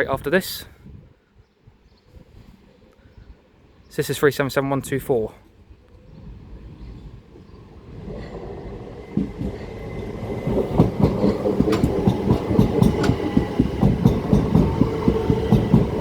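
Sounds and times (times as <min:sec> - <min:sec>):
electric train passing: 0:06.0 - 0:16.0
wheels clattering over rail joints: 0:07.2 - 0:16.0.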